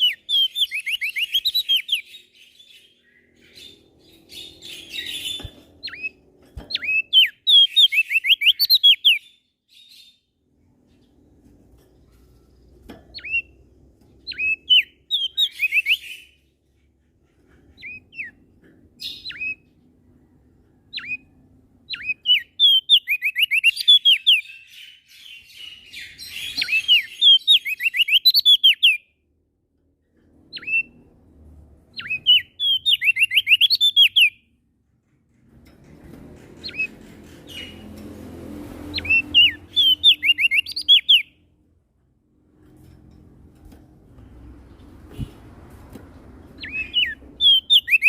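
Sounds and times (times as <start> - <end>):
songbird whistling: 0.0 - 10.0, 14.3 - 16.4, 19.0 - 19.6, 20.9 - 29.0, 32.0 - 34.4, 38.9 - 41.4, 46.6 - 48.0.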